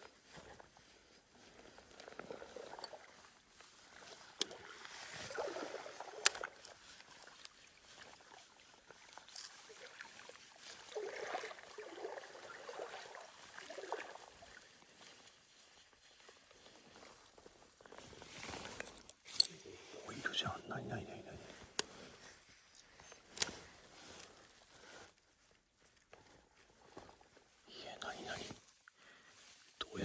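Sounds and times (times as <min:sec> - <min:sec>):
water sloshing: 0:04.4 - 0:14.9.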